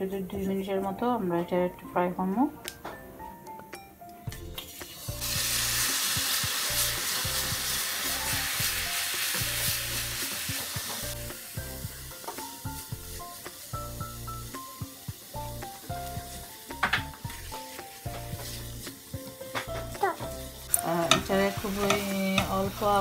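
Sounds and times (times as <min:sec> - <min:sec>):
soft background music: 0:00.0 - 0:23.0
coconut sizzling in a pan: 0:04.3 - 0:23.0
spoon scraping a pan: 0:20.6 - 0:23.0.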